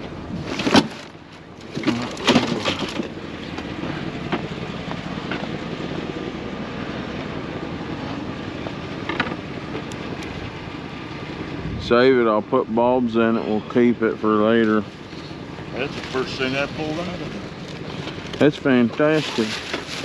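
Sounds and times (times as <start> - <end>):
background rumble: 0.0 - 20.0
objects knocking together: 1.7 - 3.1.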